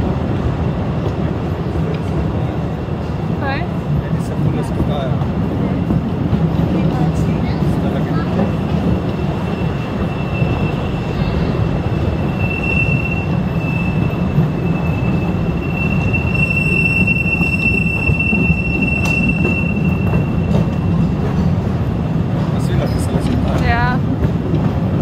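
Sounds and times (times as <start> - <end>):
train rumbling along track: 0.0 - 25.0
high wheel squeal: 9.1 - 21.2.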